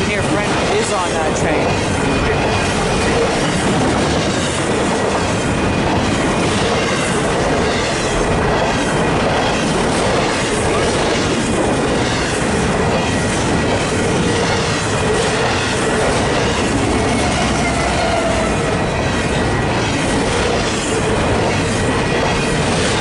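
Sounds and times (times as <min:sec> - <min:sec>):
freight train rolling past: 0:00.0 - 0:23.0
train wheels clacking on rails: 0:00.0 - 0:23.0.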